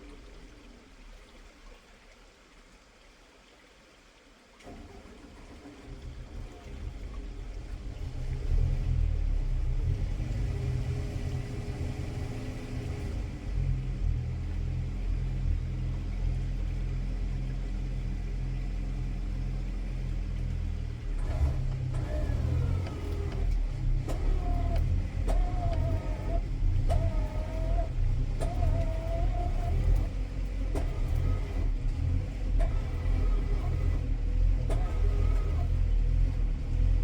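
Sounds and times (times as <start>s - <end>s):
tractor engine running: 4.6s - 37.0s.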